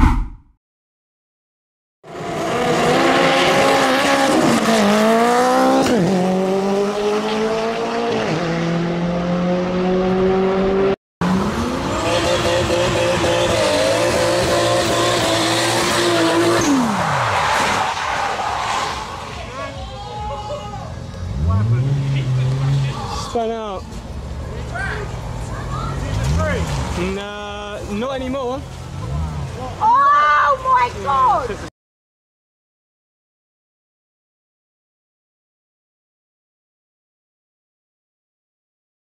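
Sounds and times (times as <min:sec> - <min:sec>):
car engine accelerating hard: 0:02.1 - 0:17.0, 0:21.1 - 0:23.4
car engine revving: 0:02.1 - 0:17.1, 0:21.1 - 0:23.4.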